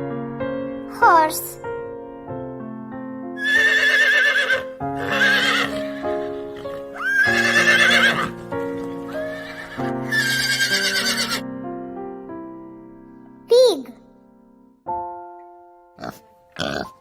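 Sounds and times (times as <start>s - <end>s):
light keyboard music: 0.0s - 17.0s
horse whinnying: 3.4s - 11.4s.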